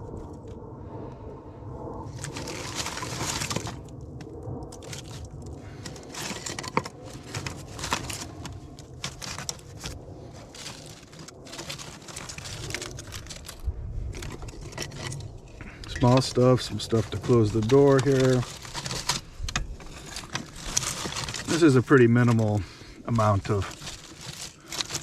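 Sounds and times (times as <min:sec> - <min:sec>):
sticks rustling and scraping: 0:02.0 - 0:25.0.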